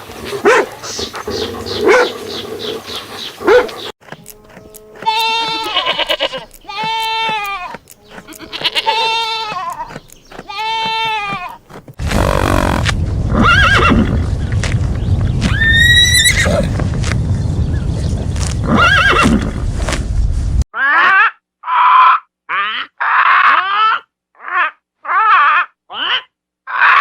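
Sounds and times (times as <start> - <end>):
bleating animal calls: 4.7 - 9.9
steady low rumble: 12.0 - 20.6.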